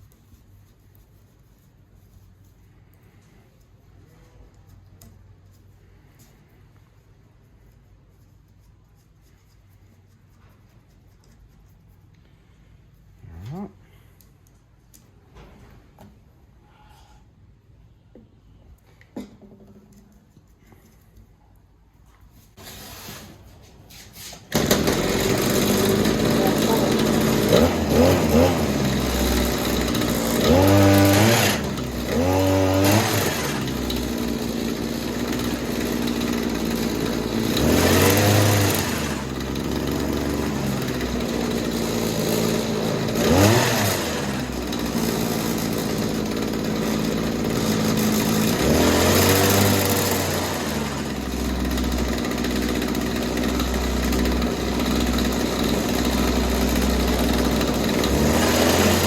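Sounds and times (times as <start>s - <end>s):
hedge trimmer engine revving: 24.5s - 59.0s.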